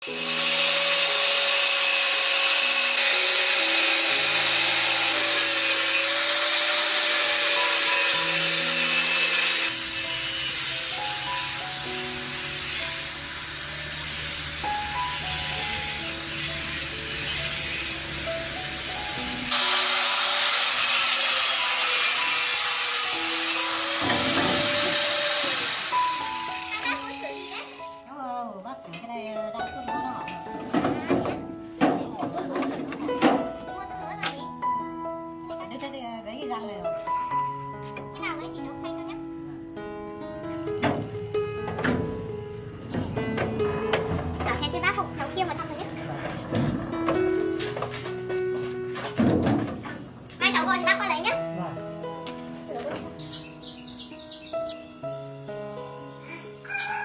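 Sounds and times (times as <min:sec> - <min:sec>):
tool rasping on a surface: 0:00.0 - 0:18.2, 0:19.5 - 0:27.8
background music: 0:00.0 - 0:57.0.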